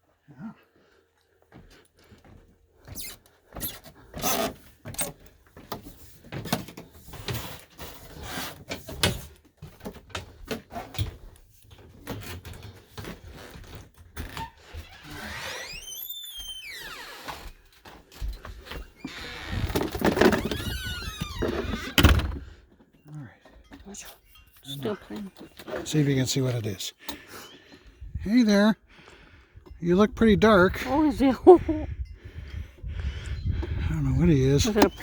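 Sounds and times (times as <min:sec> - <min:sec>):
knocks and thumps from handling: 0:19.6 - 0:20.7.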